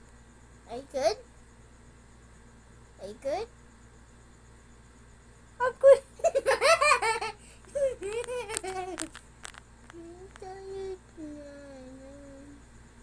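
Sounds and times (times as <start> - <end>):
person laughing: 6.2 - 9.2
person humming: 9.9 - 12.6.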